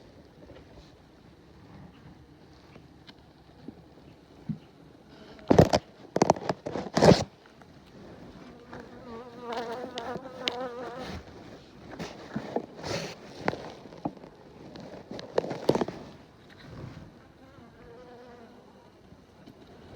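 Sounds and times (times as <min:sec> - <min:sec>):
rustling scraping handling noises: 0:05.4 - 0:17.1.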